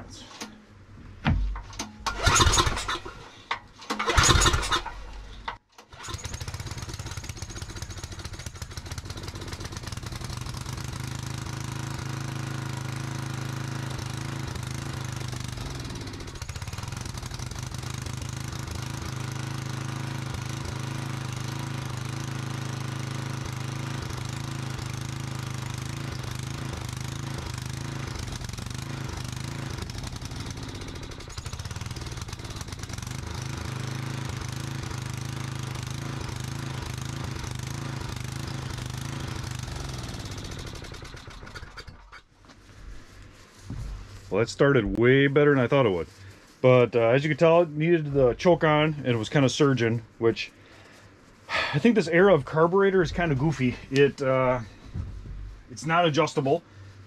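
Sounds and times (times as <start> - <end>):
recoil starter pulls: 1.4 - 42.6
generator engine running surging: 6.1 - 41.5.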